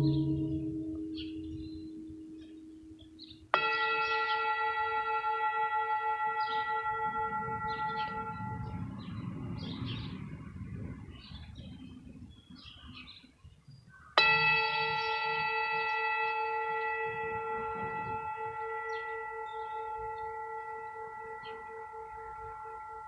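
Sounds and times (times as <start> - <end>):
birds chirping: 0.0 - 5.0, 5.8 - 23.0
singing bowl ringing: 0.0 - 9.2, 14.2 - 23.0.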